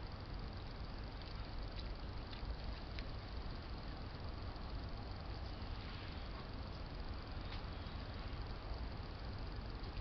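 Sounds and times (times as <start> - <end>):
faint even hiss: 3.9 - 10.0.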